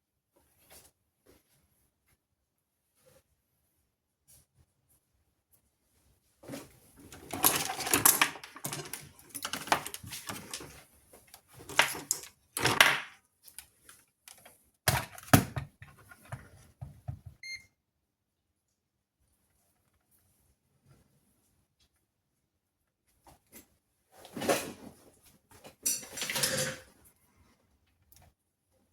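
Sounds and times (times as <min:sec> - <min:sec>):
handling clatter and rustling: 0:06.4 - 0:17.4, 0:23.3 - 0:27.0
high beep: 0:17.4 - 0:17.7.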